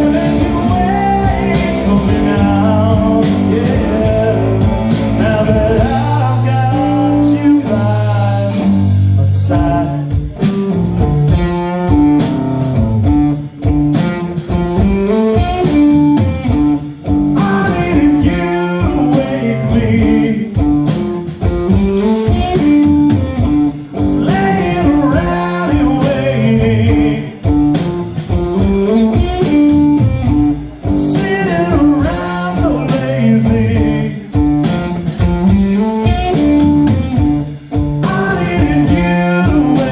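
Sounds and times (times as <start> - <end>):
drum beat with cymbals: 0.0 - 6.7, 9.5 - 39.9
person singing: 0.0 - 10.5, 17.4 - 20.6, 24.0 - 27.5, 30.8 - 34.4, 38.0 - 39.9
guitar: 0.0 - 39.9.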